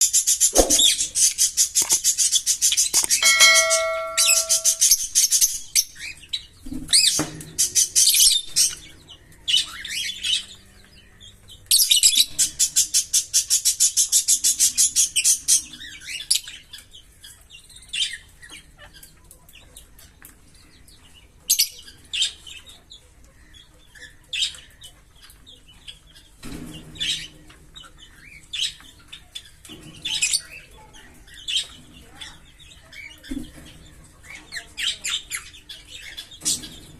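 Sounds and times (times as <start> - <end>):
lovebirds chirping: 0.1 - 5.1.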